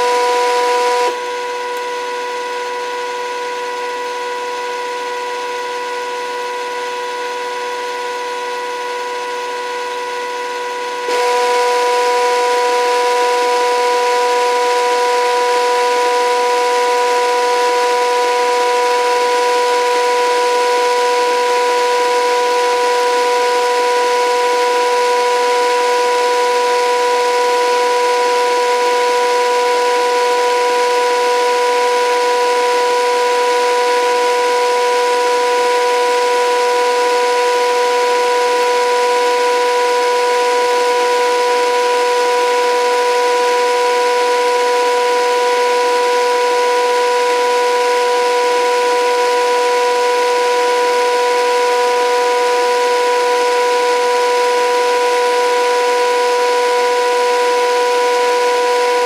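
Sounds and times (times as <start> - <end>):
electric motor whine: 0.0 - 1.8, 11.0 - 21.7.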